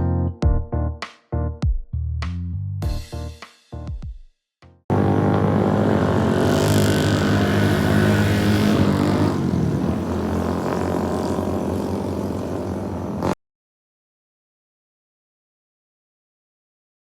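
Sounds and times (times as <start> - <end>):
engine droning: 4.9 - 13.4.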